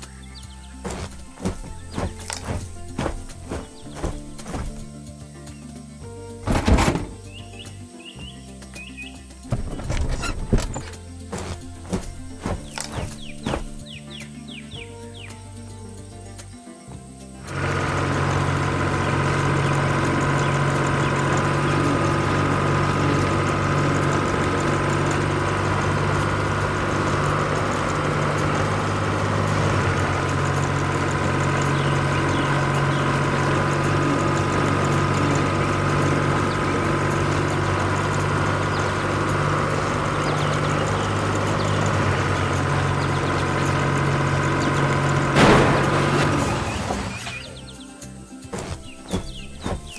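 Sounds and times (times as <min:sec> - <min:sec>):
fire truck engine idling: 0:17.5 - 0:47.5.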